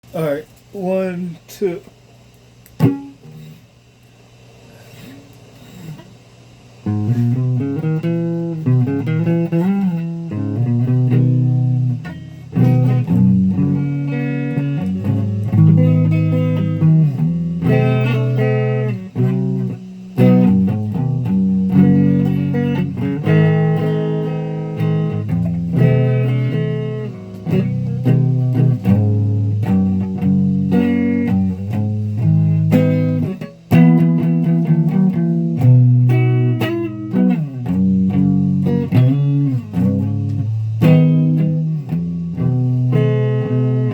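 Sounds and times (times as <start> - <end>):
guitar picked notes: 2.6 - 3.7, 6.8 - 43.9.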